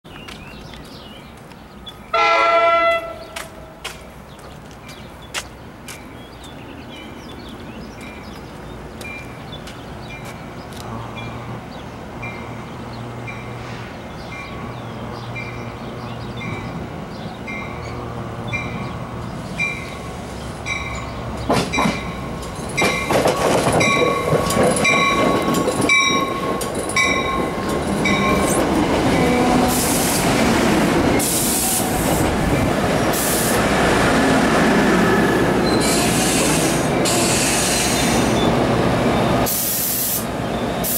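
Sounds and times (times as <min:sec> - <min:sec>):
commuter train approaching: 0:00.1 - 0:40.9
screeching wheels and brakes: 0:35.6 - 0:40.9.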